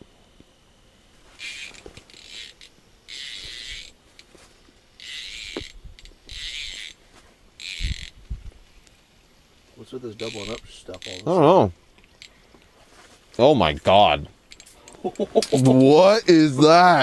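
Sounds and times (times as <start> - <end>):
fishing reel whirring and clicking: 1.4 - 4.3, 4.9 - 7.0, 7.6 - 8.2, 10.1 - 11.4, 12.0 - 12.4.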